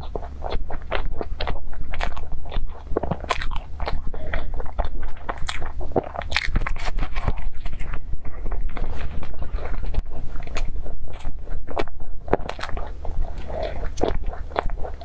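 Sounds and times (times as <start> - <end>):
person chewing crunchy pastry: 0.0 - 15.0.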